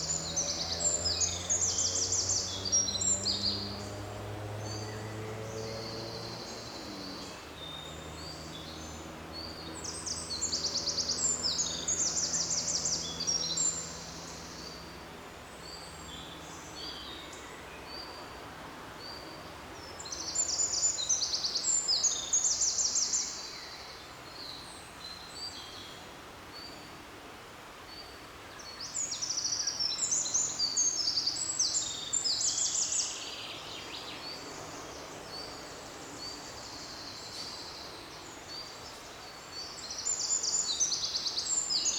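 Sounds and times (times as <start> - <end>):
faint forest background: 0.0 - 41.9
songbird singing trills: 4.6 - 15.0, 28.0 - 41.9.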